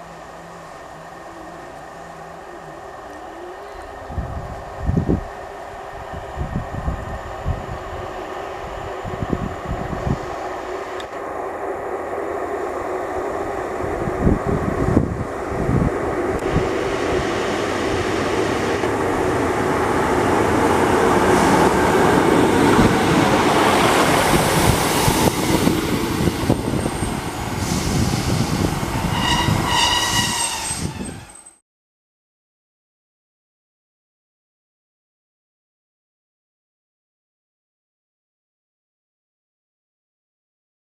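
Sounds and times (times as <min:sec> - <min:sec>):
diesel railcar passing: 0:00.0 - 0:31.6.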